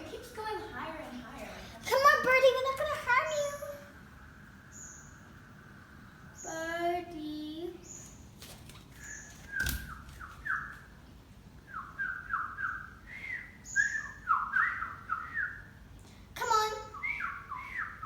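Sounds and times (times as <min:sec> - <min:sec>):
child calling: 0:01.8 - 0:04.0, 0:16.4 - 0:17.1.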